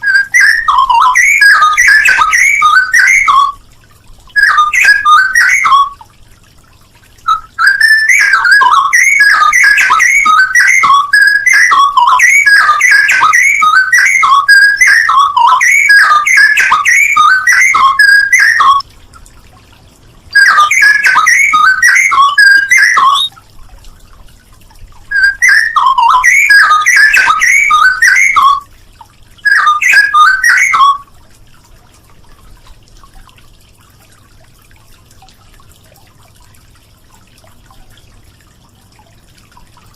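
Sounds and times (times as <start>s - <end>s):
bird fluty warbling: 0.0s - 3.6s, 4.3s - 6.0s, 7.2s - 18.8s, 20.3s - 23.4s, 25.1s - 28.7s, 29.4s - 31.1s.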